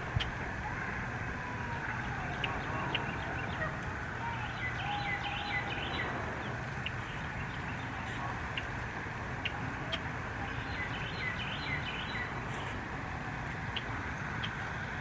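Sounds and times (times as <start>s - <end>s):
outdoor hiss and rumble: 0.0s - 15.0s
birds chipping: 1.6s - 15.0s
faint whistled bird glides: 1.8s - 8.7s.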